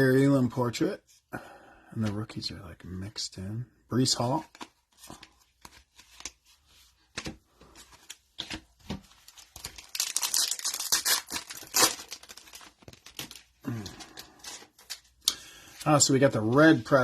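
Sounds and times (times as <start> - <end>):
cards flipping with clicks: 4.5 - 6.4
foil wrapper tearing: 9.4 - 15.0.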